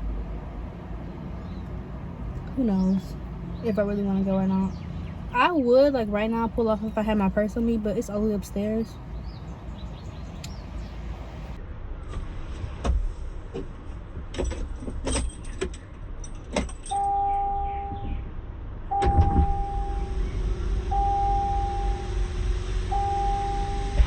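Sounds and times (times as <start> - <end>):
low car rumble: 0.0 - 24.0
whining warning tone: 16.9 - 18.2, 18.9 - 24.0.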